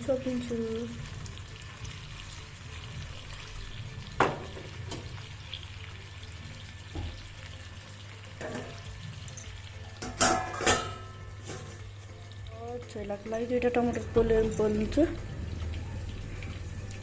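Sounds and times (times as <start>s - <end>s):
faint sizzle in covered pot: 0.0s - 17.0s
metal cookware clinks: 8.4s - 11.8s.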